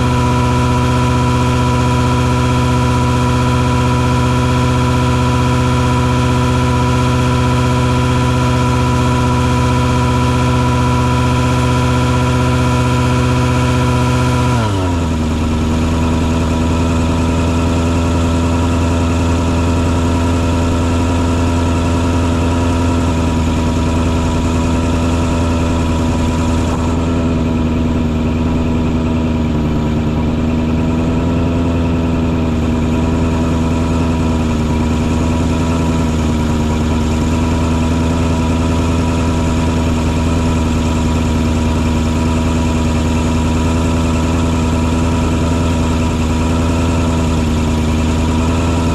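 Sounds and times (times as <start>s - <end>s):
truck engine droning: 0.0s - 48.9s.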